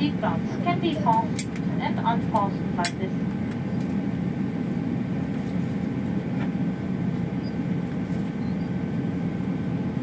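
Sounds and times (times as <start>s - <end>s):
airplane cabin rumble and hum: 0.0s - 10.0s.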